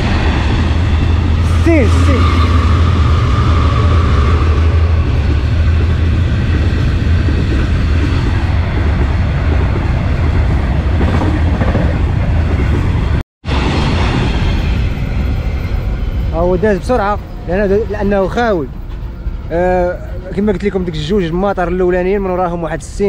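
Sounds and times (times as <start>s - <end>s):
freight wagons rumbling on rails: 0.0s - 23.0s.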